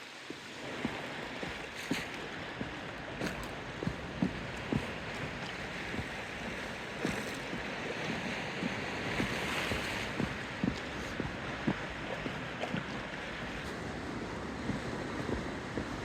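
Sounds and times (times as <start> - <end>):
small waves lapping: 0.0 - 16.0
wind on microphone: 0.6 - 16.0.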